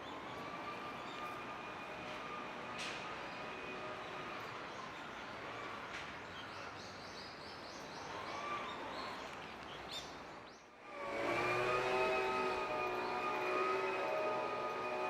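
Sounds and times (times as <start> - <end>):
held tones like a distant siren: 0.0 - 5.0, 10.9 - 15.0
city background: 0.0 - 15.0.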